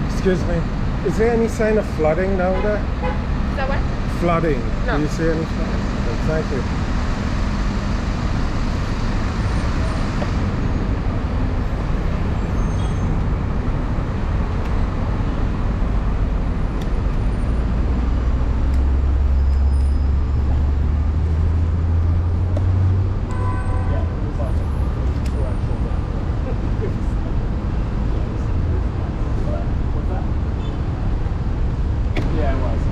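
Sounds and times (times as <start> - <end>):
heavy vehicle engine rumble: 0.0 - 32.9
passing vehicles roar: 0.0 - 32.9.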